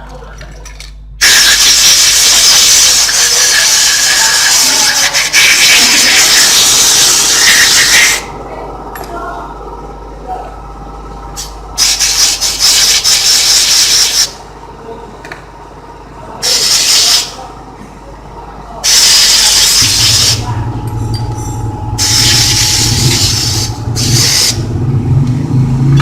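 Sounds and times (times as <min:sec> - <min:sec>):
air compressor motor humming: 0:01.1 - 0:26.0
air blowgun hissing blasts: 0:01.2 - 0:04.7.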